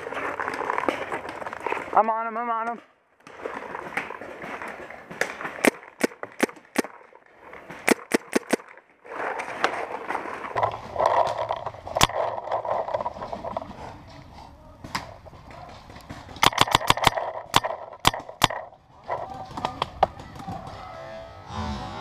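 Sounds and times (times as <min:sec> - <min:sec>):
paintball marker shots: 0:05.1 - 0:07.1, 0:07.7 - 0:08.8, 0:16.2 - 0:18.8
rustling movement: 0:06.9 - 0:20.0.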